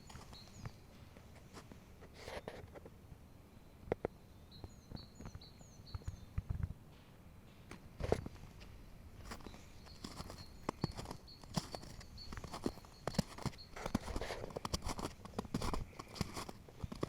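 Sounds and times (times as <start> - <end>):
footsteps crunching on path: 9.2 - 17.0.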